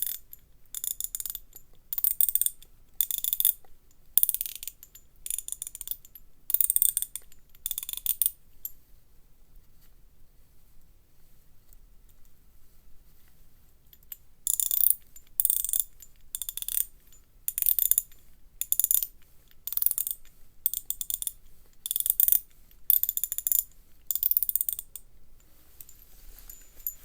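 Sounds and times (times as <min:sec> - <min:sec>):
ratchet pawl clicking: 0:16.4 - 0:16.8, 0:19.7 - 0:25.0.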